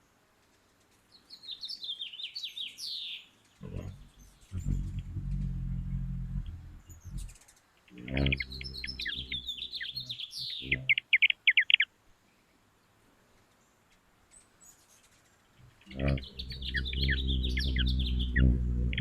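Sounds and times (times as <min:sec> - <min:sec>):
hummingbird wings humming: 0:03.6 - 0:11.0, 0:15.6 - 0:19.0
hummingbird chittering: 0:03.6 - 0:11.8, 0:15.6 - 0:19.0.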